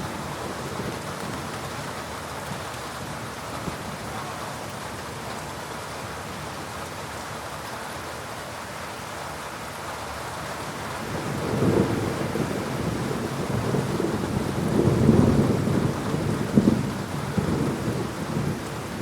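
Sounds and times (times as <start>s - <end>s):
heavy rain falling: 0.0s - 19.0s
low thunder rumble: 11.0s - 19.0s.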